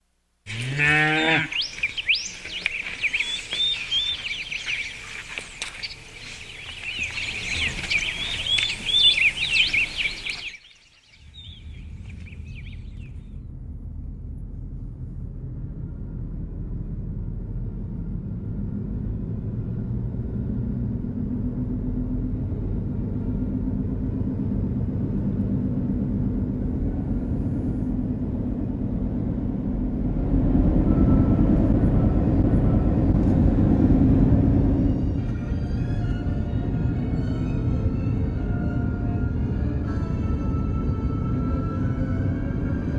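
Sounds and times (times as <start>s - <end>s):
cow lowing: 0.5s - 10.5s
small birds chirping: 0.5s - 13.2s
car driving rumble: 1.5s - 10.6s.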